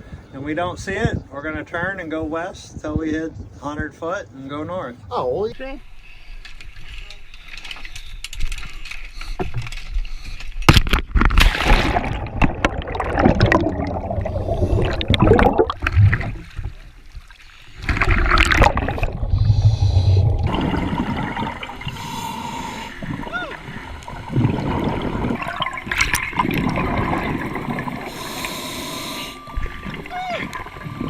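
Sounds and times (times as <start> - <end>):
seawater gurgling and splashing: 9.3 - 31.0.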